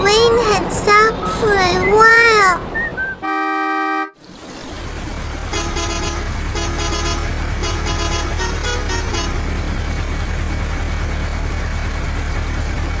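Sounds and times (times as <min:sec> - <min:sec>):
vehicle engine rumbling: 0:00.0 - 0:13.0
short horn toots: 0:03.2 - 0:04.2, 0:05.5 - 0:09.6.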